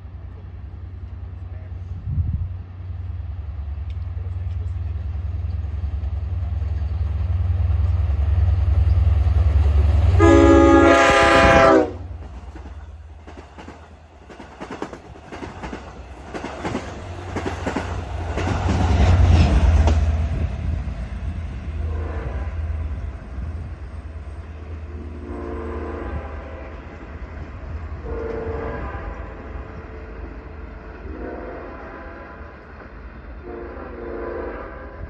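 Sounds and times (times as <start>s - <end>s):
diesel locomotive engine rumble: 0.0s - 35.0s
train horn blast: 10.1s - 12.2s, 21.8s - 23.7s, 24.8s - 27.0s, 28.0s - 30.2s, 31.0s - 32.7s, 33.4s - 35.0s
wheels clicking over rail joints: 12.2s - 20.8s.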